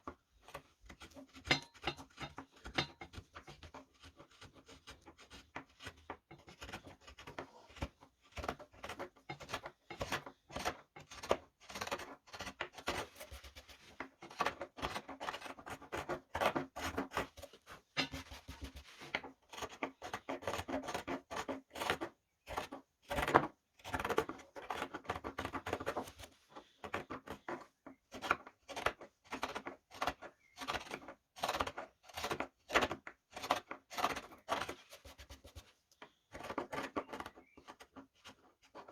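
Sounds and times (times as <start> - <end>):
gouge scraping wood: 0.4 - 38.9.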